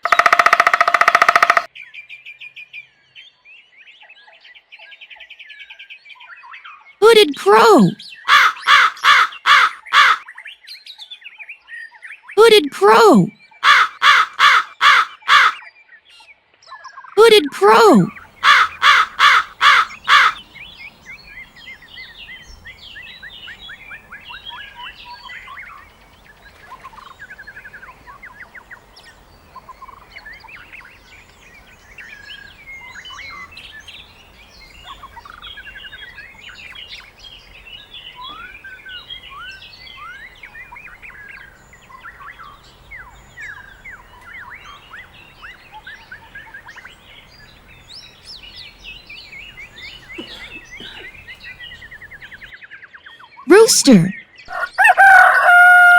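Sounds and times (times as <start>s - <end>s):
songbirds chirping and trilling: 8.0s - 11.6s, 13.4s - 16.5s, 18.1s - 53.4s, 54.2s - 55.9s
crow cawing: 8.3s - 10.2s, 13.6s - 15.6s, 18.4s - 20.4s.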